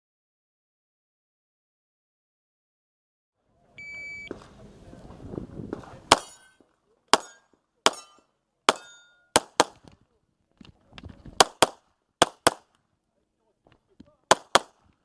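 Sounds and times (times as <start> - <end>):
shot timer beep: 3.8 - 4.3
handgun shots: 6.1 - 6.5, 7.2 - 9.8, 11.4 - 12.7, 14.3 - 14.8.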